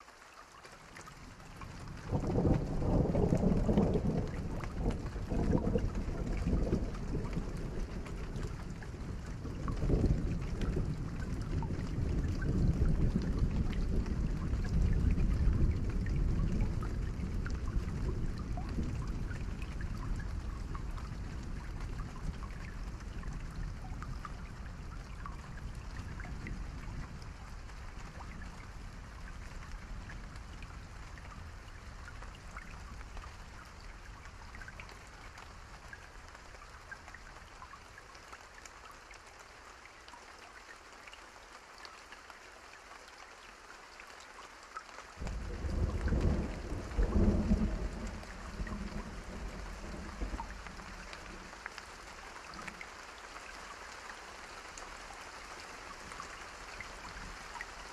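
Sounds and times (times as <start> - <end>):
steady rain: 0.0 - 57.9
thunder rumbling: 1.7 - 25.0, 45.2 - 51.5.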